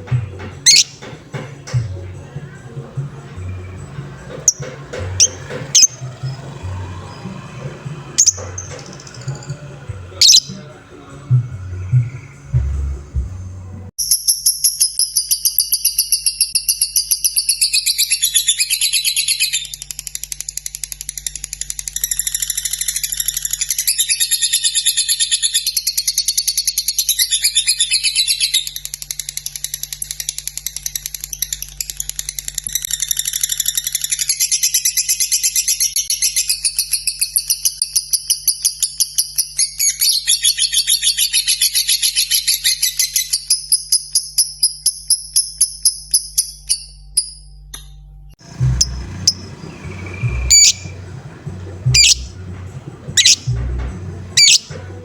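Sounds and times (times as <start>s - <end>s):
lovebird trilling chirps: 0.6s - 1.0s, 5.2s - 6.4s, 8.2s - 9.5s, 10.2s - 10.6s, 48.4s - 52.4s, 53.2s - 53.6s, 54.4s - 54.8s.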